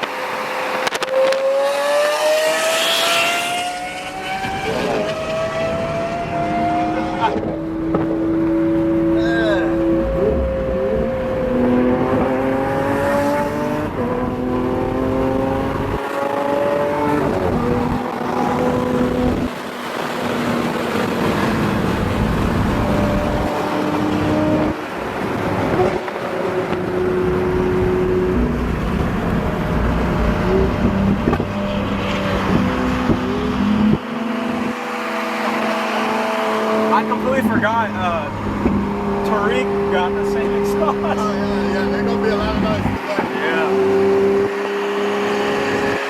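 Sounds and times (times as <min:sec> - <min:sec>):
road noise: 0:00.0 - 0:46.0
sports car engine accelerating: 0:00.0 - 0:46.0.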